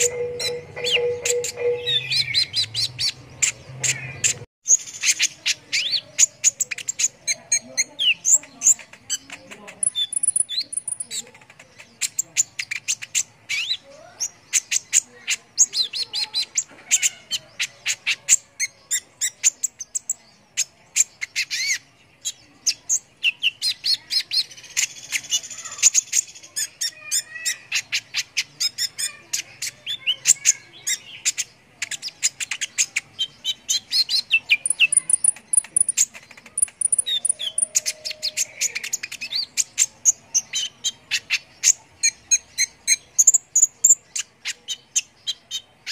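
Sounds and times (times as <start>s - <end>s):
bird chirping and trilling: 0.0s - 45.9s.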